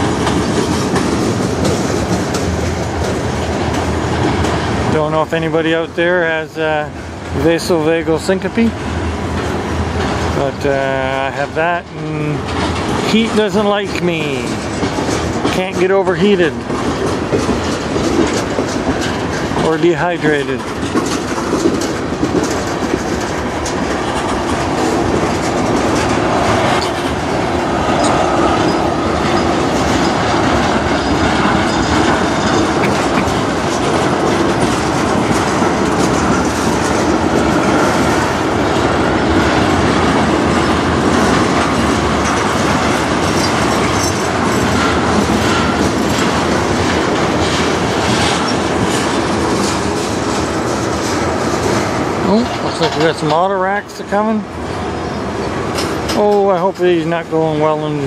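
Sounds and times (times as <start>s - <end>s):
freight train wheels clacking: 0.0s - 58.0s.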